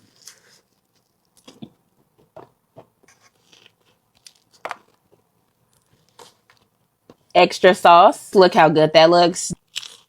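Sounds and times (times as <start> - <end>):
food crunching: 0.0 - 7.3, 9.6 - 10.0.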